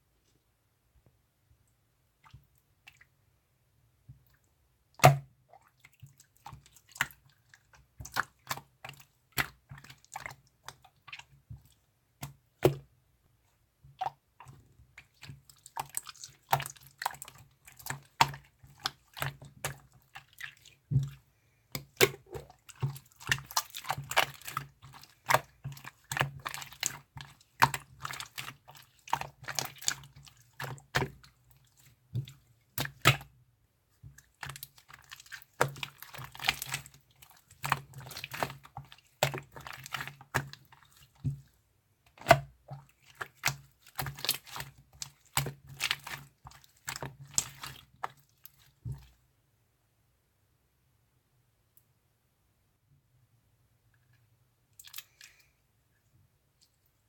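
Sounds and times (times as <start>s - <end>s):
wet clicking and crackling: 54.7s - 55.5s.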